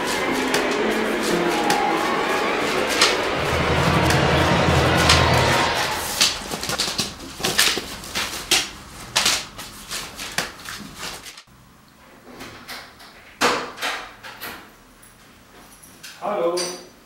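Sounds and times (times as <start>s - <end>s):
paper rustling: 6.2s - 11.4s.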